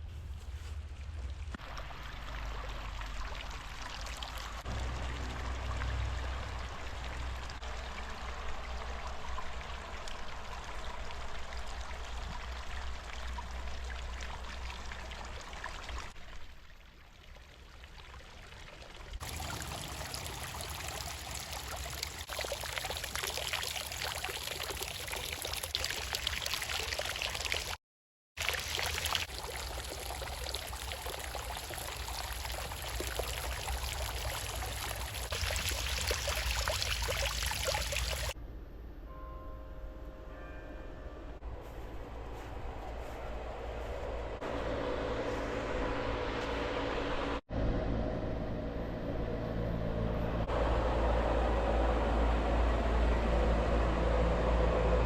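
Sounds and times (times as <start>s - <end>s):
water running and pouring: 1.6s - 27.8s, 28.4s - 38.4s
low rumble: 4.6s - 16.2s, 41.2s - 55.0s.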